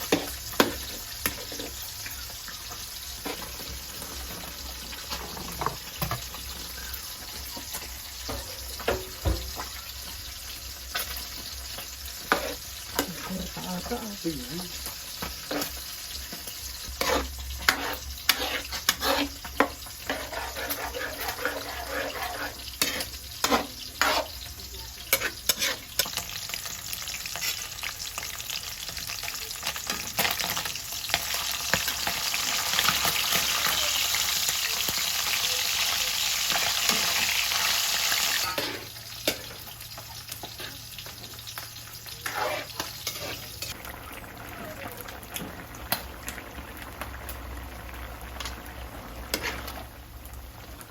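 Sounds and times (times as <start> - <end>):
food sizzling in a pan: 0.0 - 50.9
utensil knocking and scraping pan: 12.2 - 13.2, 16.9 - 24.4.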